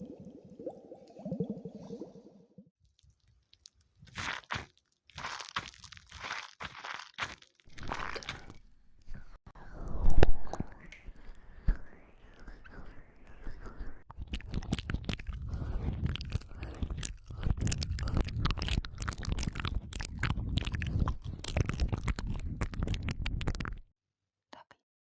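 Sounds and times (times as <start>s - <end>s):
crunching and crackling: 2.8s - 8.7s, 14.2s - 23.8s.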